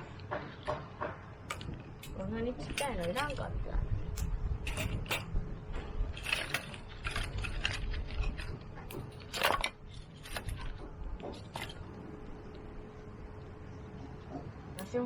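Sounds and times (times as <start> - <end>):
gear and wood knocking: 0.0 - 12.6
wind rumble on microphone: 1.6 - 9.2.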